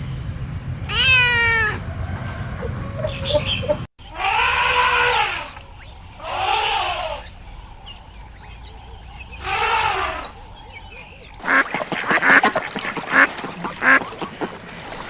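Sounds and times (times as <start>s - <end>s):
cat meowing: 0.9s - 1.8s
duck quacks: 9.4s - 10.4s, 11.4s - 14.6s.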